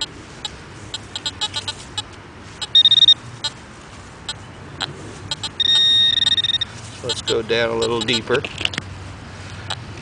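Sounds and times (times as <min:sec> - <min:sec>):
metal detector alert tone: 0:00.9 - 0:03.6, 0:05.3 - 0:08.4.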